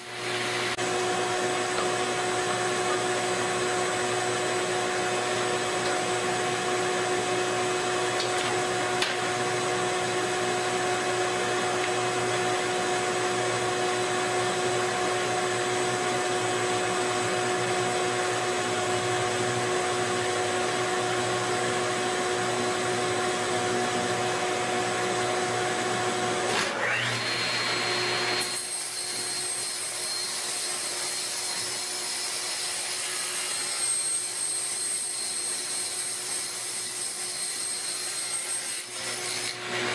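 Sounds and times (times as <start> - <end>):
power tool motor whine: 25.9 - 31.0.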